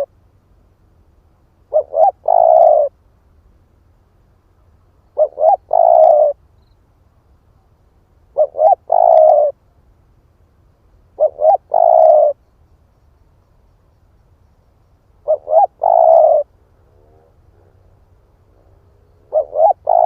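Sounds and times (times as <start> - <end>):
dove cooing: 1.7 - 3.0, 5.1 - 6.4, 8.3 - 9.6, 11.2 - 12.4, 15.2 - 20.0.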